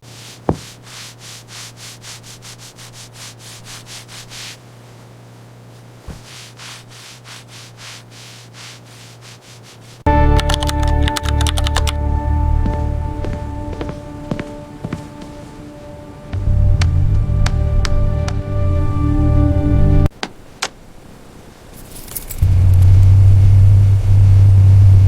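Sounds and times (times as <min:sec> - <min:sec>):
rhythmic scrubbing strokes: 0:00.0 - 0:04.6, 0:06.0 - 0:20.1
low hum: 0:00.0 - 0:20.1, 0:21.9 - 0:25.0
loud music: 0:10.1 - 0:14.8.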